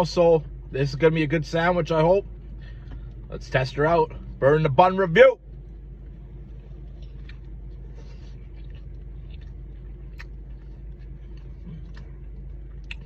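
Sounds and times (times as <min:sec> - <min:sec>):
steady low hum: 0:00.0 - 0:13.0
person chewing crispy food: 0:06.5 - 0:13.0.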